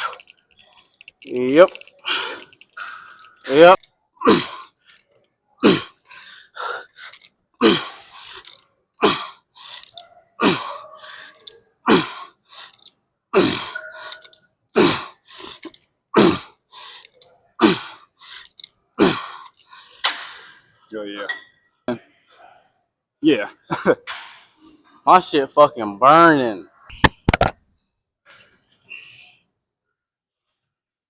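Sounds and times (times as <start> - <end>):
man grunting: 3.6 - 4.6.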